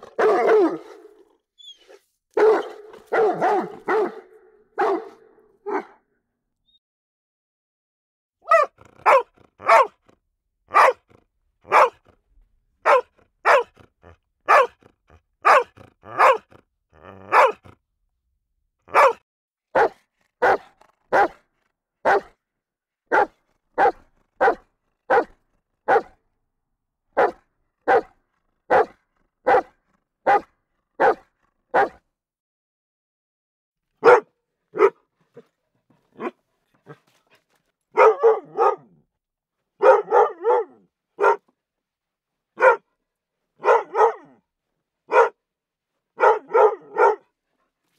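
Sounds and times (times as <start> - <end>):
dog barking: 0.0 - 1.3, 1.9 - 6.1, 8.4 - 10.0, 10.7 - 11.1, 11.7 - 12.1, 12.8 - 17.8, 18.9 - 21.4, 22.0 - 22.4, 23.1 - 26.2, 27.2 - 32.0, 34.0 - 35.1, 36.2 - 37.0, 37.9 - 39.0, 39.8 - 41.5, 42.6 - 42.9, 43.6 - 44.4, 45.1 - 45.4, 46.2 - 47.3.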